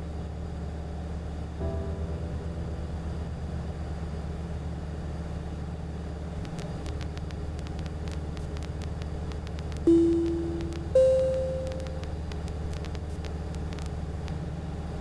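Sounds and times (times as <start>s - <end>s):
sharp clicks: 6.4s - 14.4s.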